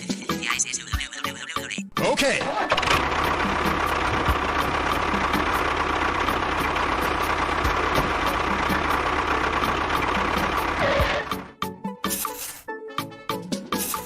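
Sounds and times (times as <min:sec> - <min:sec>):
small engine idling: 0:02.6 - 0:11.6.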